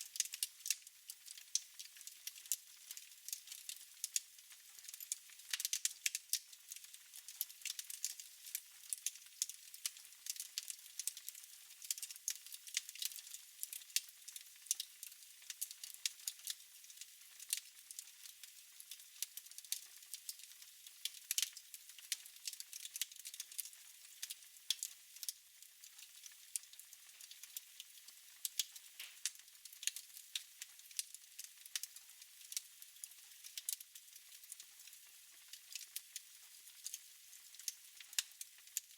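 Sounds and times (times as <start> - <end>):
wood fire crackling: 0.0 - 35.0, 35.7 - 38.9.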